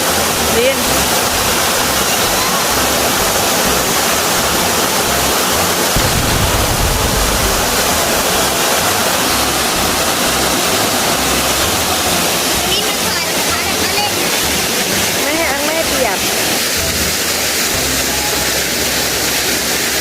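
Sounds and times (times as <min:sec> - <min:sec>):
waterfall rushing into pool: 0:00.0 - 0:20.0
deep rumble: 0:06.0 - 0:09.6.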